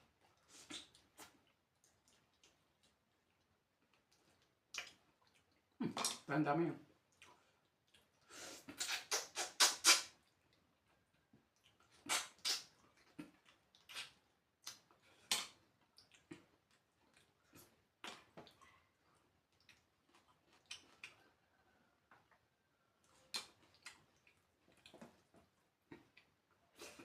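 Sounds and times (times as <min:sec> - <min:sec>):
person slurping and chewing: 0:07.2 - 0:10.4, 0:11.6 - 0:18.8.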